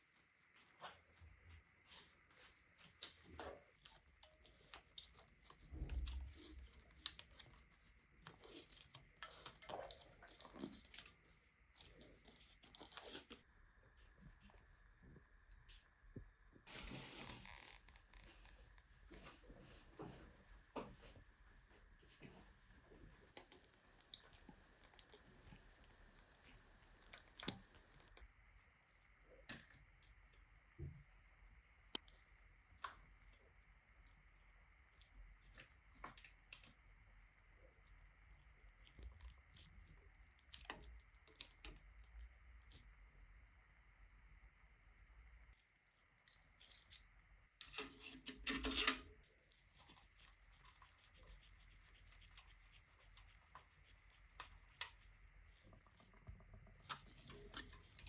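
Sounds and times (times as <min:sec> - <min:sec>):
small clicks and taps: 0:31.9 - 0:32.2.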